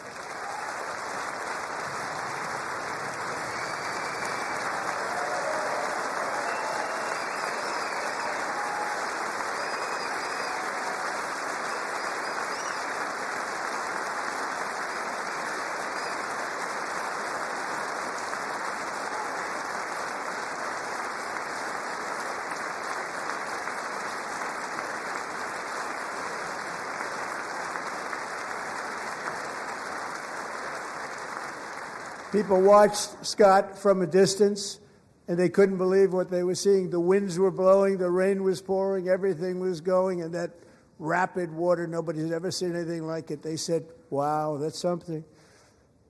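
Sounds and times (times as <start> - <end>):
audience applauding: 0.0 - 33.6.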